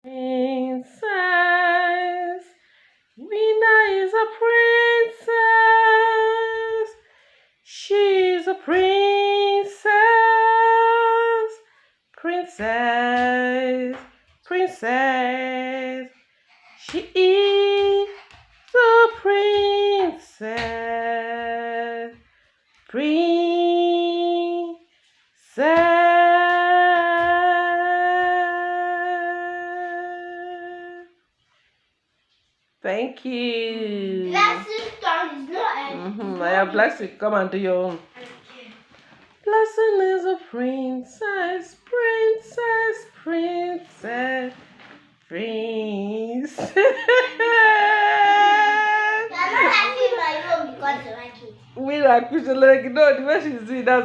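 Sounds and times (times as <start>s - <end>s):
woman singing a cappella: 0.0s - 31.3s, 32.8s - 34.3s, 39.4s - 49.3s.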